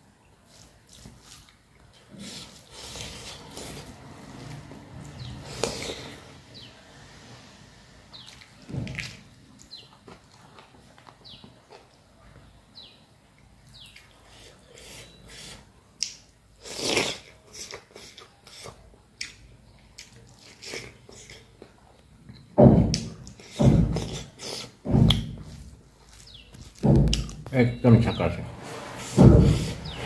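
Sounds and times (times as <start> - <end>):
chewing with wet mouth clicks: 16.0 - 22.5.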